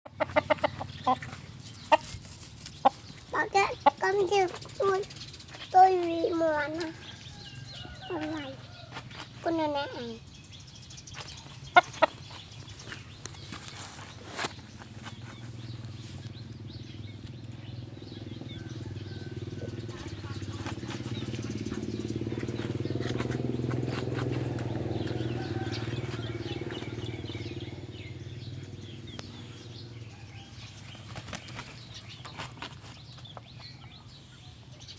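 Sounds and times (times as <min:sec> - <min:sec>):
chickens cheeping: 0:00.1 - 0:05.0, 0:05.8 - 0:10.1, 0:11.2 - 0:34.8
chickens scratching: 0:00.1 - 0:10.2, 0:11.1 - 0:16.6, 0:18.9 - 0:27.2, 0:30.4 - 0:34.1.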